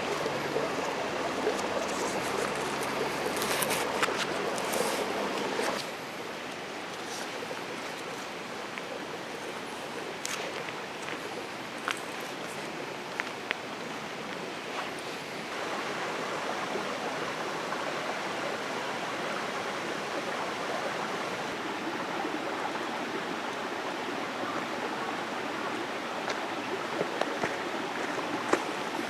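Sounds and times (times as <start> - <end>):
steady rain falling: 0.0 - 18.2.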